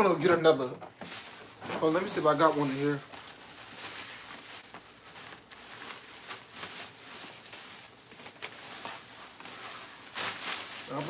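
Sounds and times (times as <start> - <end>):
hands rummaging through packaging: 0.9 - 11.0.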